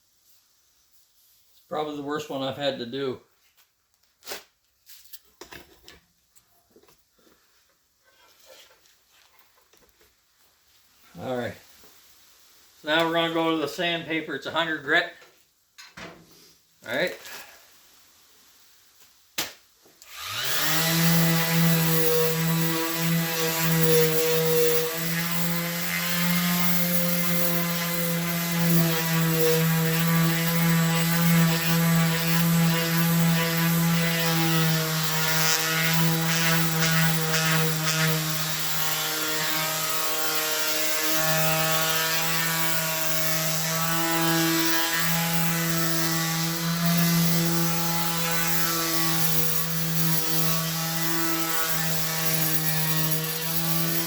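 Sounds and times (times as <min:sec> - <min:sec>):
electric sander on metal: 0:20.1 - 0:54.0.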